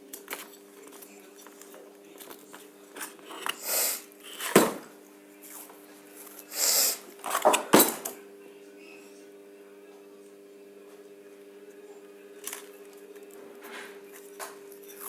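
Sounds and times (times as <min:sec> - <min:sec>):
hissy rasps: 0:03.6 - 0:04.0, 0:06.5 - 0:07.0.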